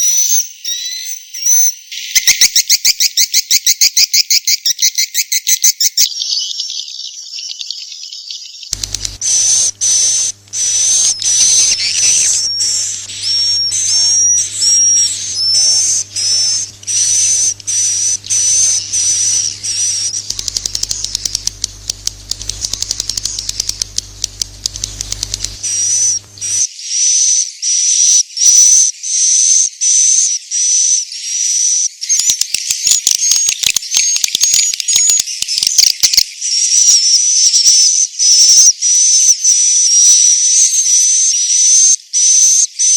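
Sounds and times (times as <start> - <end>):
bird chirping twitters: 6.3 - 26.2
low hum: 8.8 - 26.6
rapid clicking: 8.8 - 26.6.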